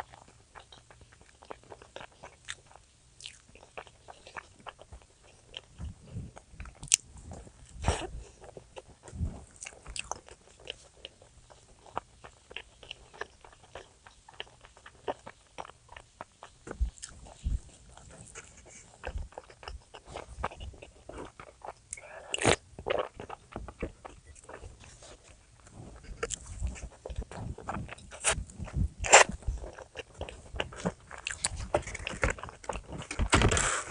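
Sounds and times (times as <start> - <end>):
person chewing crunchy food: 0.0 - 33.9.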